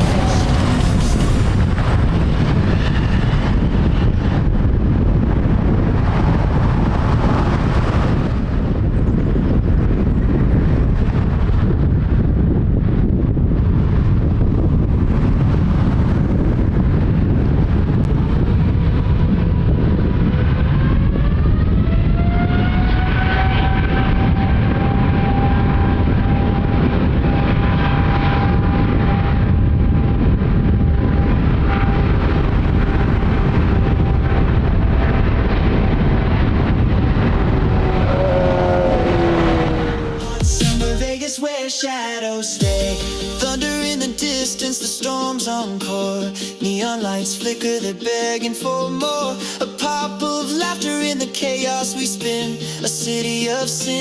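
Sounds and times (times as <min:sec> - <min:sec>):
jet engines spooling up: 0:00.0 - 0:08.9, 0:36.7 - 0:41.0
wind buffeting microphone: 0:00.0 - 0:40.5
jet engines running: 0:00.0 - 0:41.2.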